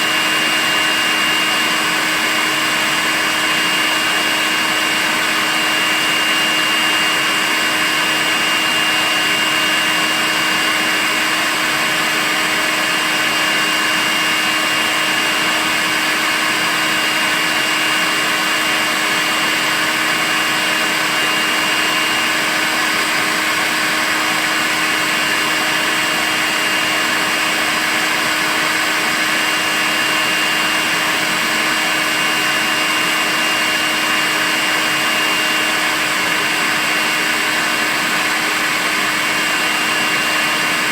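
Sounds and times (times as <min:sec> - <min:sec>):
stick vacuum cleaner running: 0:00.0 - 0:40.9.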